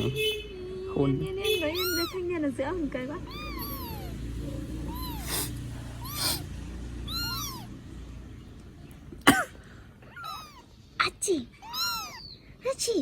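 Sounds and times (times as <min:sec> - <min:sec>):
kittens mewing: 0:01.5 - 0:02.5, 0:03.1 - 0:07.9, 0:10.0 - 0:10.8, 0:11.4 - 0:13.0
loud cough-like burst: 0:09.2 - 0:09.6.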